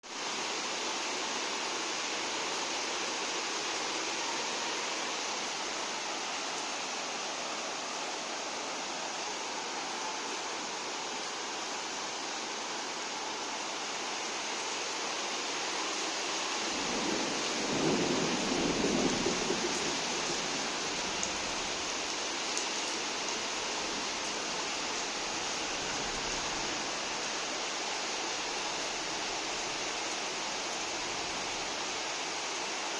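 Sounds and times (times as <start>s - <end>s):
steady rain: 0.0s - 32.9s
low rumble of thunder: 16.7s - 21.9s.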